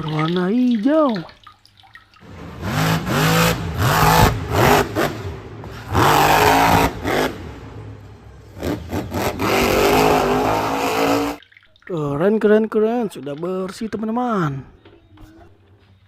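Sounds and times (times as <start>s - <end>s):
car engine revving: 2.2s - 11.4s.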